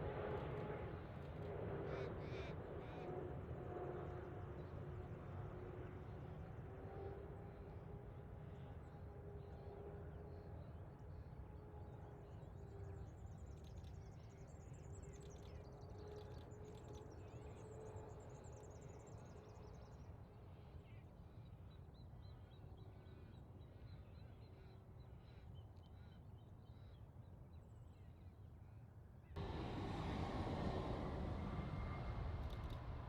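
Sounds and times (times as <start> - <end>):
steady low rumble: 29.4 - 33.0.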